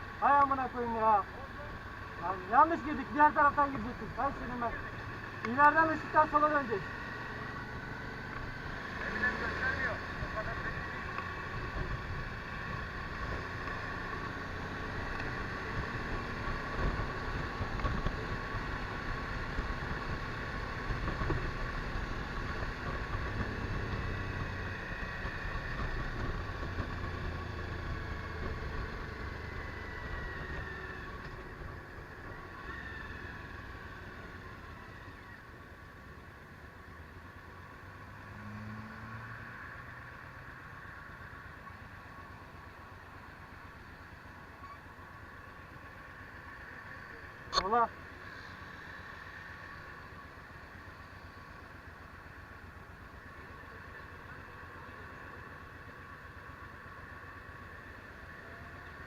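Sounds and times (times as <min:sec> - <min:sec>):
motorcycle engine running: 0:00.0 - 0:38.3.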